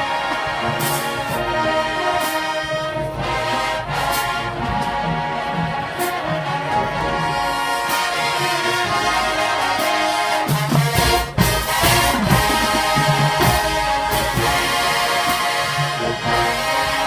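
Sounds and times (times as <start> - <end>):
brass band playing a ballad: 0.0 - 17.0
drum hits: 10.7 - 14.7.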